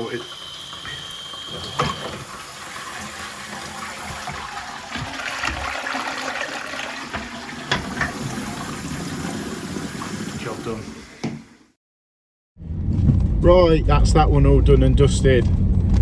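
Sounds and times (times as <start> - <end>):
toilet flushing: 0.0 - 11.8.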